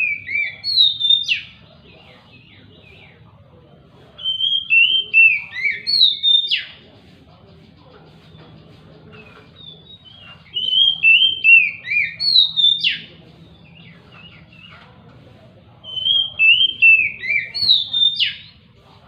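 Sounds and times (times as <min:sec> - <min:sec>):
bird singing whistled notes: 0:00.0 - 0:03.2, 0:04.2 - 0:06.8, 0:09.4 - 0:14.7, 0:15.8 - 0:18.6.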